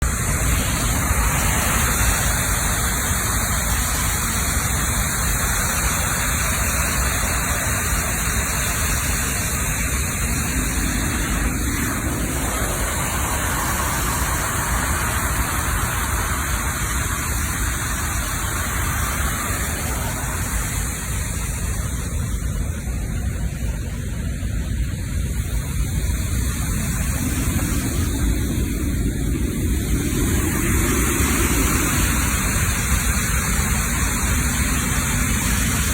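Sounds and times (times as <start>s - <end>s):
water pouring over spillway: 0.0s - 22.7s.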